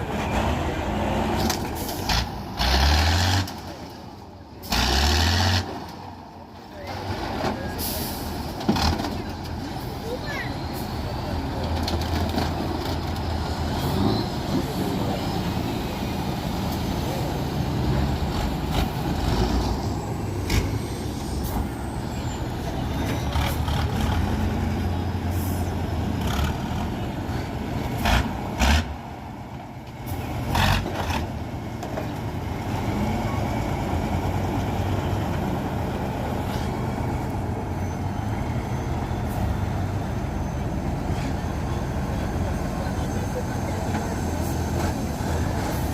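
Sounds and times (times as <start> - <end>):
truck diesel engine under load: 0.0 - 45.9.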